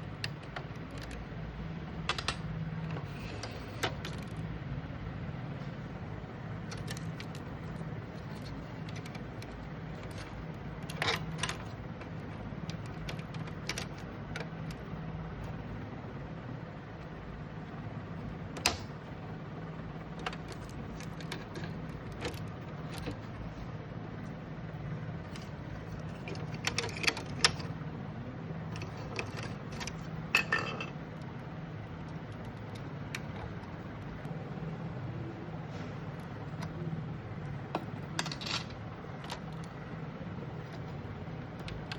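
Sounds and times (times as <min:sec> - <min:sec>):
plastic and metal parts clicking: 0:00.0 - 0:01.3, 0:02.0 - 0:04.4, 0:06.6 - 0:14.9, 0:20.1 - 0:23.4, 0:25.2 - 0:27.7, 0:28.7 - 0:31.3
steady low hum: 0:00.0 - 0:41.9.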